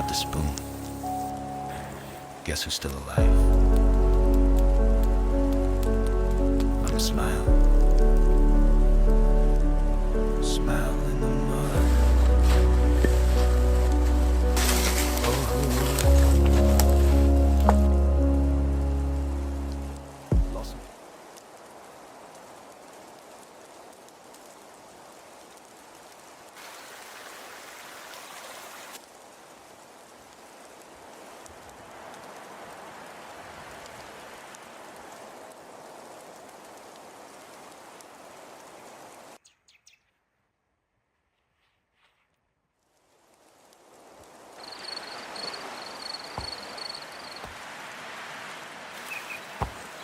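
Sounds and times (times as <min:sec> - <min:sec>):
steady hiss: 0:00.0 - 0:07.4, 0:10.4 - 0:18.0, 0:42.9 - 0:50.0
steady outdoor noise: 0:43.0 - 0:50.0.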